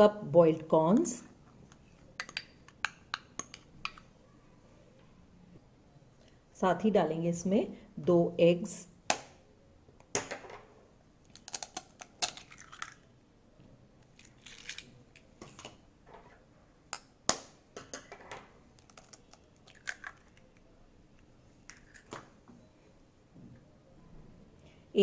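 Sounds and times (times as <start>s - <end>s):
egg cracking: 11.3s - 13.1s, 18.7s - 20.7s.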